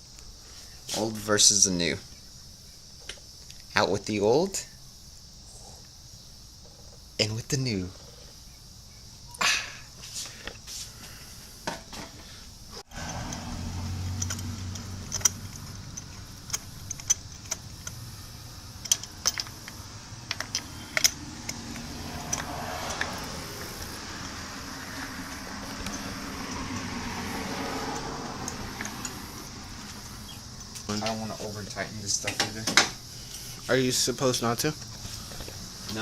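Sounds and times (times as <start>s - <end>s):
metallic clicks of hand tools: 13.1s - 18.1s, 18.8s - 29.3s.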